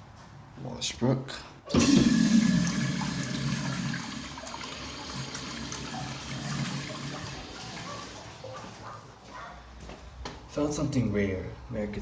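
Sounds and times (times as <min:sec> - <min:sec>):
urinal flushing: 0:01.7 - 0:08.8.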